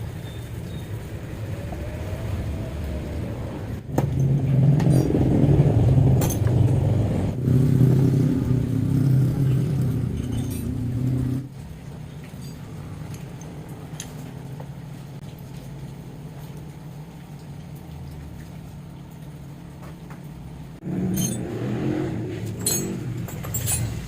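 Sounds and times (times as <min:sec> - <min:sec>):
scooter engine revving and idling: 0:01.1 - 0:11.5, 0:20.8 - 0:24.0.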